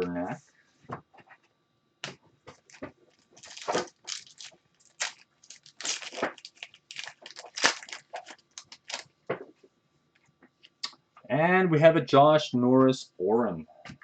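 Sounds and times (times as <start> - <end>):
plastic wrappers crinkling: 2.6 - 9.1.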